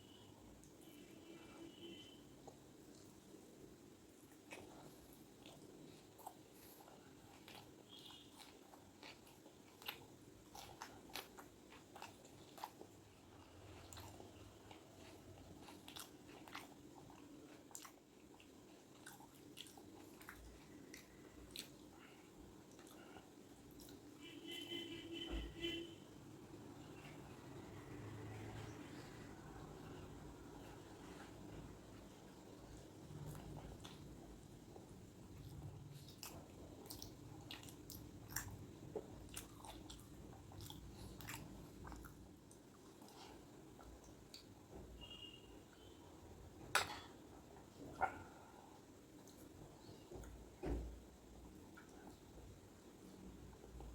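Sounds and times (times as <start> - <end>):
faint steady hum: 0.0 - 53.9
person chewing food: 2.4 - 24.2, 26.8 - 44.7.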